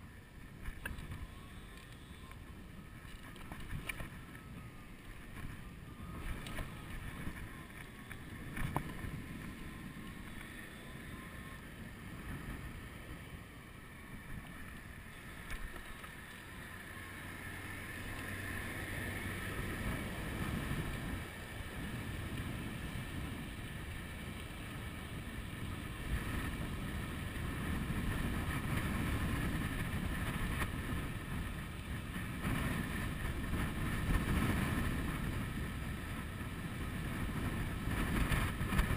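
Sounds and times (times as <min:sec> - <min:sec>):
wind buffeting microphone: 0:17.4 - 0:38.9.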